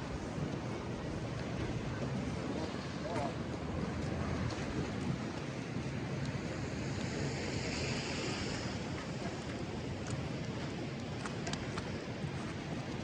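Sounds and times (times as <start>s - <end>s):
street noise: 0.0s - 12.4s
hiss: 6.5s - 9.8s.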